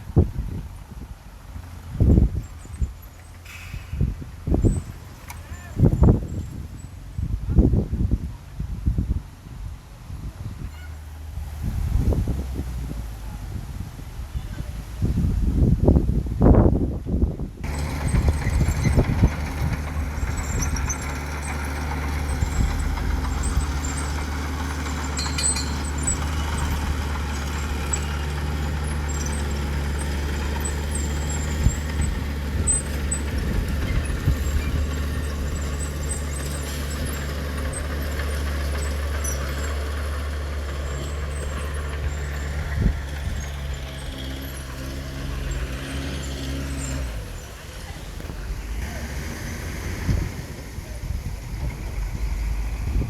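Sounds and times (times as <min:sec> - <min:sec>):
metal clanks: 0:17.6 - 0:40.0
heavy diesel engine droning: 0:17.6 - 0:53.0.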